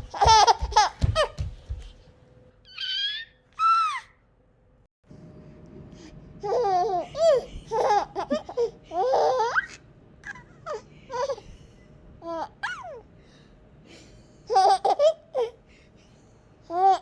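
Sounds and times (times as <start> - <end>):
baby laughing and squealing: 0.0 - 1.3, 2.7 - 4.2.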